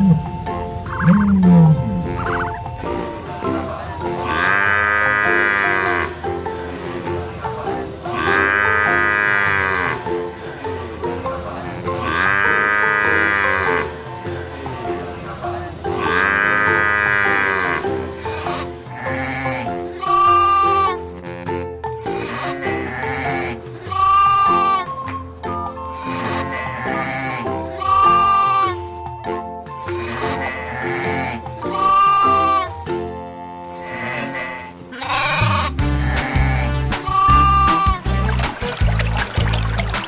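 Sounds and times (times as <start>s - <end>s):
background music: 0.0s - 40.0s
bleating calls: 4.2s - 6.2s, 8.1s - 10.0s, 12.0s - 13.8s, 22.5s - 28.7s, 33.7s - 38.0s.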